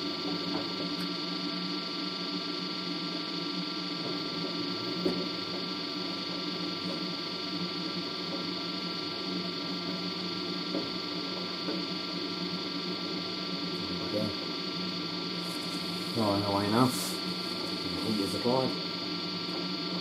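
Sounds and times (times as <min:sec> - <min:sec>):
washer dryer humming and whining: 0:00.0 - 0:20.0.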